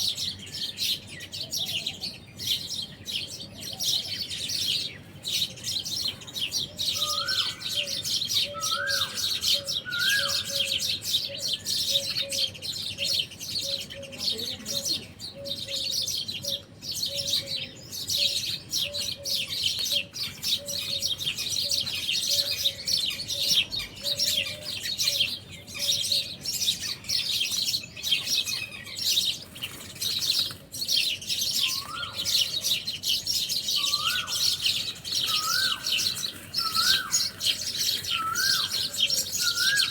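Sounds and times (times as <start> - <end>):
small birds chirping in chorus: 0.0 - 39.9
clear rising bird call: 33.8 - 39.9.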